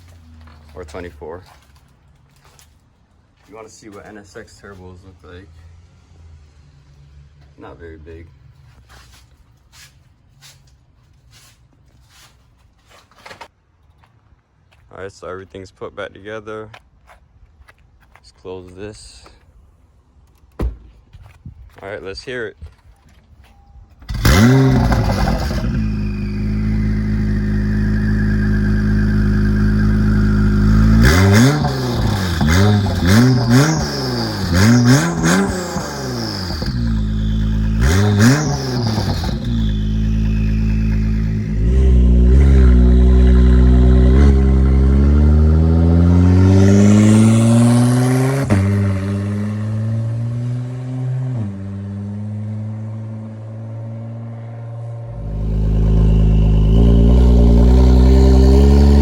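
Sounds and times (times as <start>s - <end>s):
car engine idling and revving: 0.0s - 1.9s, 24.0s - 59.0s
car engine starting: 24.0s - 59.0s.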